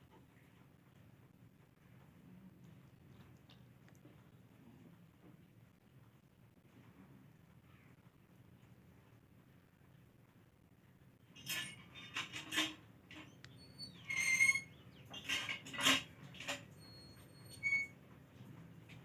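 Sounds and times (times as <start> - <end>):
kittens scuffling and scraping: 11.4 - 19.0
kitten squeak: 13.5 - 14.7.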